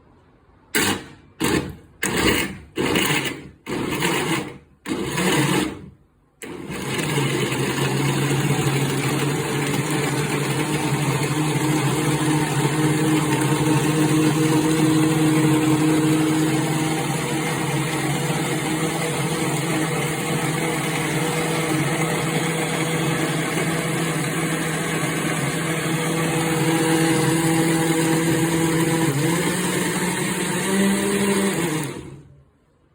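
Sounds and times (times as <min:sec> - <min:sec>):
blender motor running: 0:00.8 - 0:32.4.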